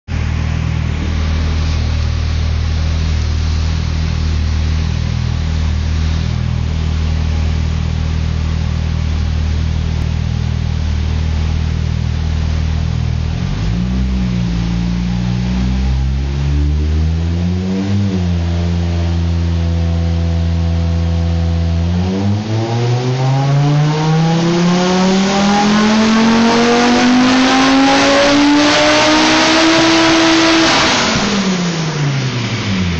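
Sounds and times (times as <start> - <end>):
turbocharged car engine revving: 0.1 - 32.9.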